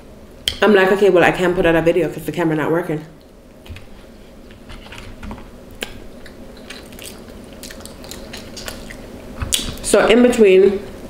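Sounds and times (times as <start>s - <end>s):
person chewing: 5.8s - 9.8s.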